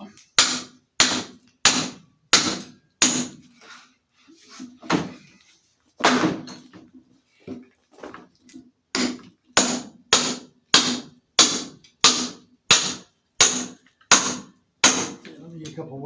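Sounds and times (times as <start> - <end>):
hammer striking hatchet in log: 0.4 - 3.4, 9.0 - 15.2.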